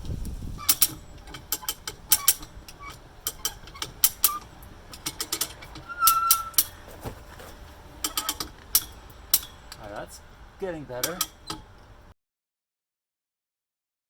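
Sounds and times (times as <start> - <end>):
winch ratchet clicking: 0.6 - 6.8
brief squeak: 5.9 - 6.8.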